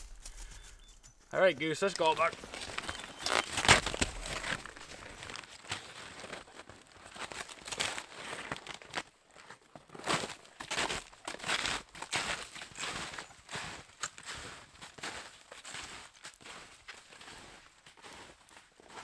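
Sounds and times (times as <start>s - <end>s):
footsteps crunching in snow: 0.0s - 9.0s.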